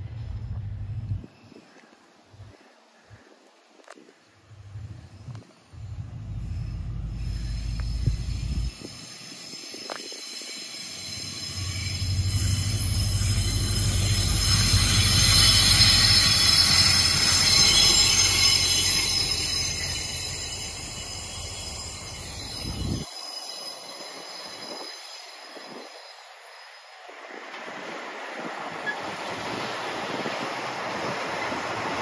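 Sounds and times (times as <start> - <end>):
locomotive engine humming: 4.5 - 8.9, 11.0 - 23.0
wheels squealing on rails: 4.5 - 32.0.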